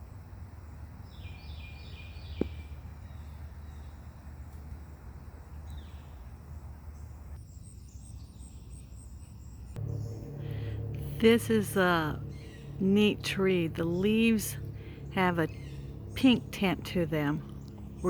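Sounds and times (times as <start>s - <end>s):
birds chirping: 0.0s - 18.0s
steady low rumble: 9.8s - 18.0s.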